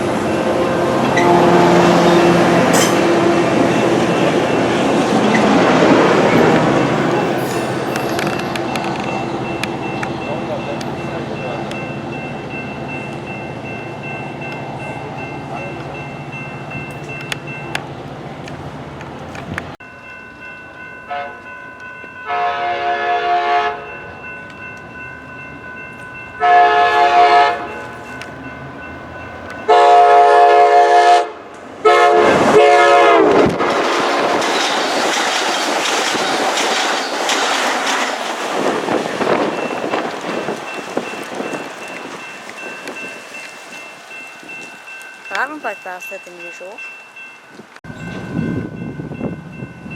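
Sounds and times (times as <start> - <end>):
train horn blasts: 0.0 - 4.4, 21.1 - 21.4, 22.2 - 23.9, 26.4 - 27.9, 29.7 - 33.6
train wheels rushing on rails: 0.0 - 19.8, 24.1 - 46.8.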